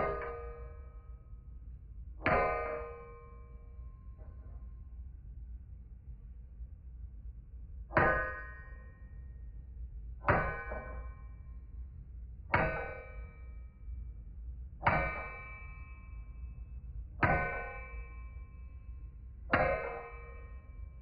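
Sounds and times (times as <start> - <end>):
hammer striking steel on anvil: 0.0 - 0.8, 10.3 - 11.1, 12.6 - 13.2, 14.9 - 15.5, 17.2 - 18.0, 19.6 - 20.6.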